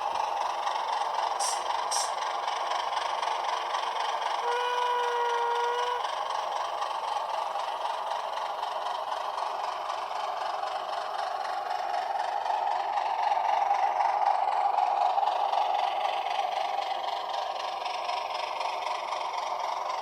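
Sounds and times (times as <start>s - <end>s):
model diesel engine sound: 0.0s - 20.0s.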